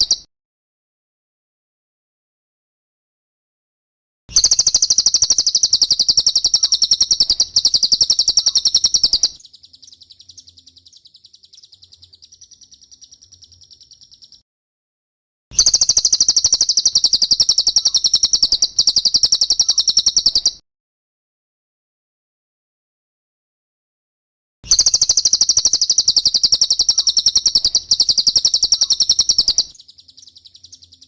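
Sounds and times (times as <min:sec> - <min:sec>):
songbird trilling: 0:00.0 - 0:00.2, 0:04.3 - 0:14.4, 0:15.6 - 0:20.6, 0:24.7 - 0:31.0.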